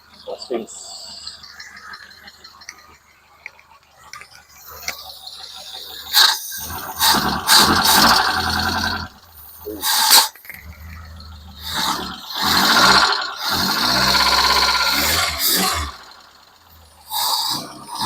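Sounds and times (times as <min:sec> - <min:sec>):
four-cylinder engine running: 0:04.5 - 0:18.0.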